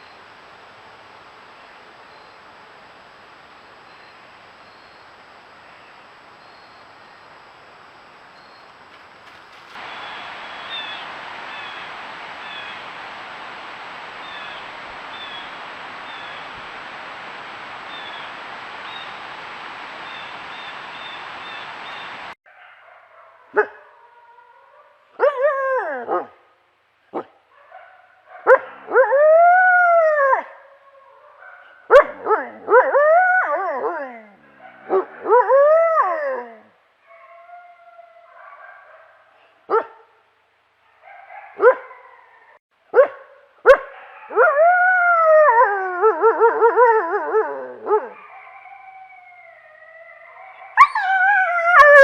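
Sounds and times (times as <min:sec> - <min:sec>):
canines howling and yipping: 0:27.9 - 0:39.2, 0:40.9 - 0:42.6, 0:43.9 - 0:52.0.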